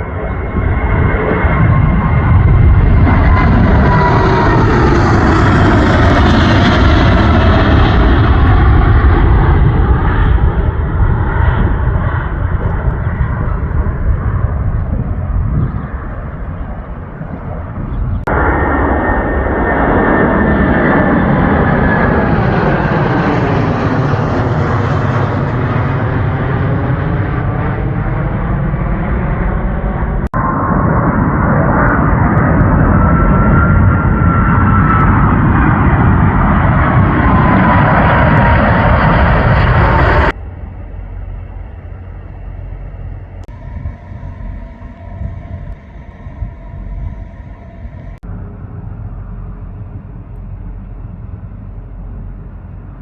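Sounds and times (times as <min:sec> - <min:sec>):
faint hum tones: 0:00.0 - 0:24.8, 0:38.3 - 0:53.0
airliner engines roaring past: 0:00.0 - 0:53.0
loud jet aircraft noise: 0:00.0 - 0:53.0.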